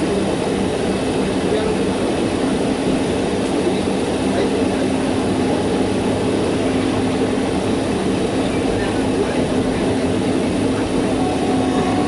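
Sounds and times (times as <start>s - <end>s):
train wheels rumbling: 0.0s - 12.0s
even hum: 4.3s - 12.0s.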